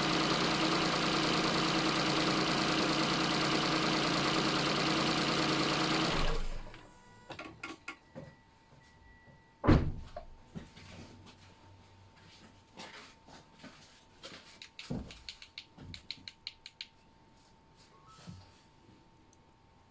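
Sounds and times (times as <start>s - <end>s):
petrol engine running with knocking: 0.0s - 6.8s
loud thump: 9.6s - 10.1s.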